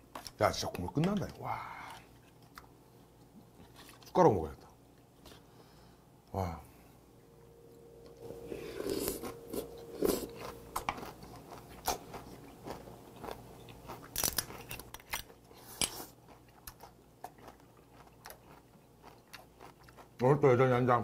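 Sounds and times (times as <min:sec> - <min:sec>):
crunchy chewing: 0:08.8 - 0:20.2.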